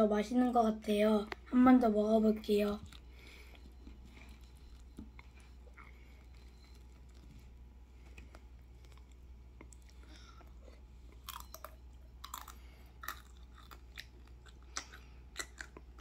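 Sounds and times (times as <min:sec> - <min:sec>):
child crunching crisp snack: 0:08.8 - 0:16.0.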